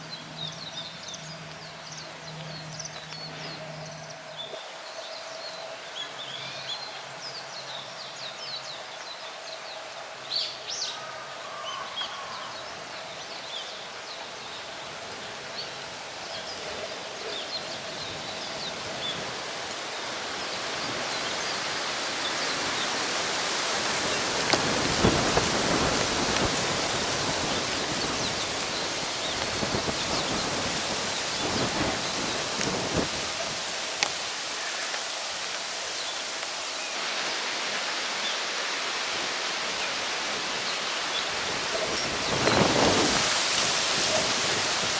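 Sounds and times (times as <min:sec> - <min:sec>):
wind rushing through trees: 0:00.0 - 0:44.9
birds chirping: 0:10.4 - 0:37.0, 0:39.7 - 0:44.9.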